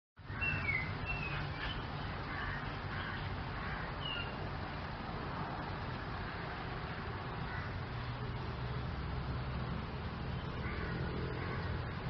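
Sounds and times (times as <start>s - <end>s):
birds chirping: 0.2s - 4.5s, 9.9s - 12.0s
low rumbling background noise: 0.2s - 12.0s.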